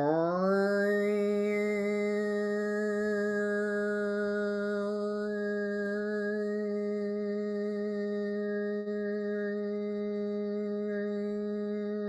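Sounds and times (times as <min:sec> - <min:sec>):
woman singing long low note: 0:00.0 - 0:12.0.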